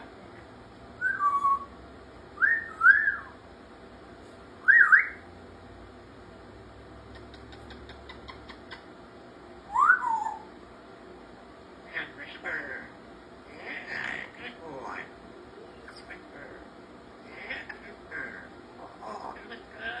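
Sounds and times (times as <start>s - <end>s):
parrot whistling: 1.0s - 1.8s, 2.4s - 3.4s, 4.6s - 5.2s, 9.7s - 10.5s.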